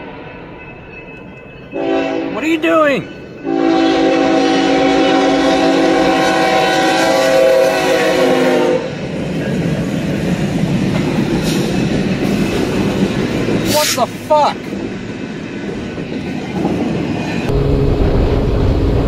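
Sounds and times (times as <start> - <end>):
freight train rumble and clatter: 0.0 - 19.0
locomotive air horn blast: 1.8 - 2.4, 3.4 - 8.9.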